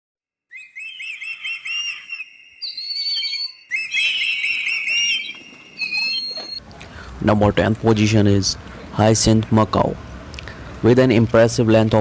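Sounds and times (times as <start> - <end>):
bird singing whistled notes: 0.5 - 6.6.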